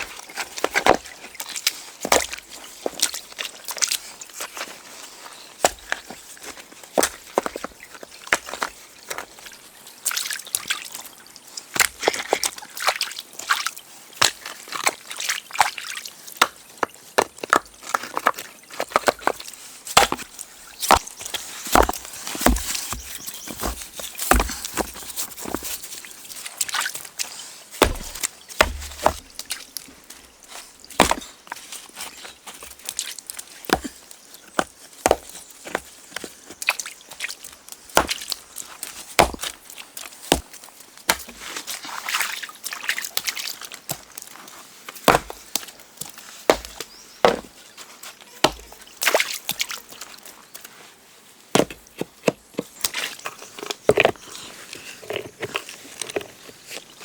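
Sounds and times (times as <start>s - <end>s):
wood chopping strikes: 20.0s - 25.6s, 27.8s - 29.4s, 31.0s - 31.2s, 39.2s - 39.4s.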